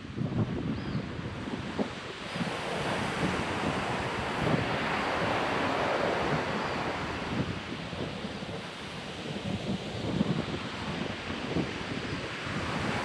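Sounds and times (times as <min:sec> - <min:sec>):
wind buffeting microphone: 0:00.0 - 0:13.0
ocean surf breaking: 0:02.2 - 0:09.4.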